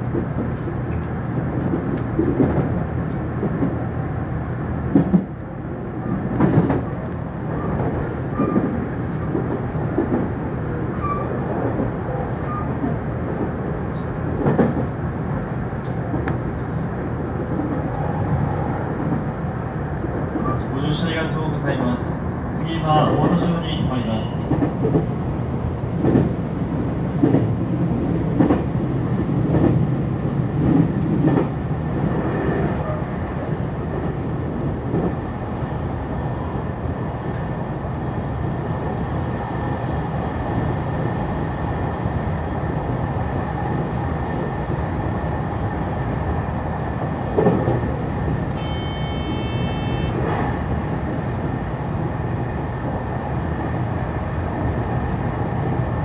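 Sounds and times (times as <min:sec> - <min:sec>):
train wheels rumbling: 0:00.0 - 0:56.0.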